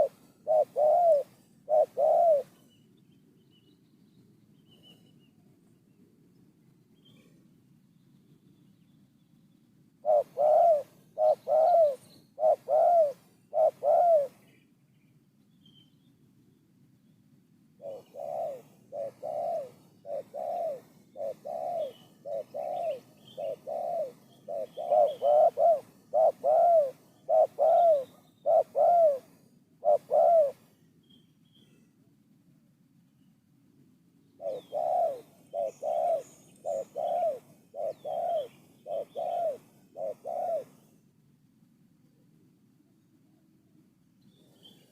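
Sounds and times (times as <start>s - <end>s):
dove cooing: 0.0s - 2.7s, 10.0s - 14.5s, 17.8s - 30.8s, 34.4s - 41.0s.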